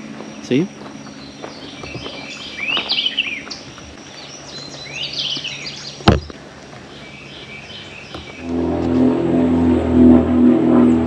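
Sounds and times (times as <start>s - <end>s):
songbird chirping: 0.0s - 8.6s.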